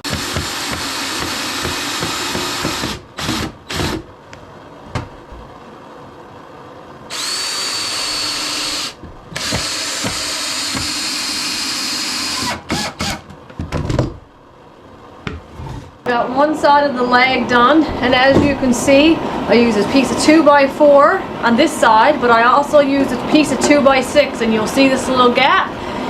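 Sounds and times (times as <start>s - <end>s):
power drill driving screws: 0.0s - 4.0s, 7.1s - 13.2s.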